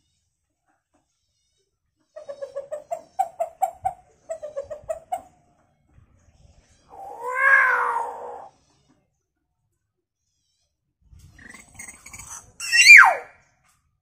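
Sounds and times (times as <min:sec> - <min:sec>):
bird clucking notes: 0:02.2 - 0:05.3.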